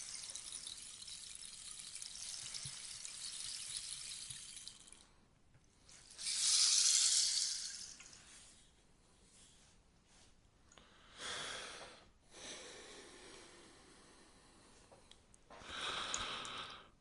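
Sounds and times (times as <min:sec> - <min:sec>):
rainstick pellets pattering: 0:00.0 - 0:05.0, 0:06.1 - 0:08.2.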